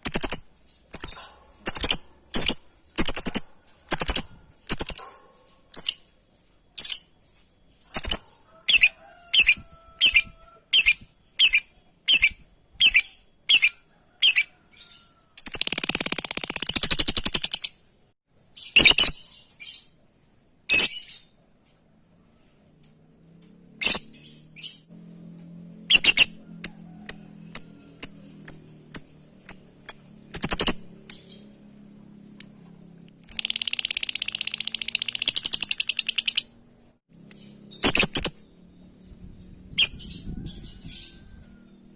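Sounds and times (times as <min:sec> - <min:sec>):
lovebird chirping and chattering: 0:00.0 - 0:17.8, 0:18.6 - 0:20.0, 0:20.7 - 0:21.4, 0:23.8 - 0:24.8, 0:25.9 - 0:26.4, 0:27.0 - 0:31.5, 0:33.2 - 0:36.7, 0:37.3 - 0:38.5, 0:39.7 - 0:41.3.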